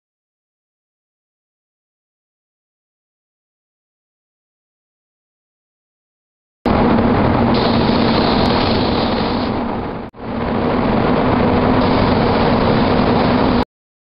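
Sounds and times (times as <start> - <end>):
constant low hum: 6.7 - 13.6
spray booth air rush: 7.5 - 9.8, 11.8 - 13.6.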